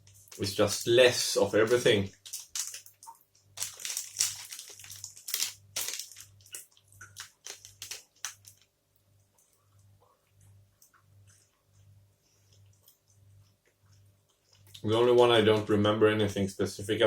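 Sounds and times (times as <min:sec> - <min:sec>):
wet chewing and crunching: 0:02.2 - 0:14.9.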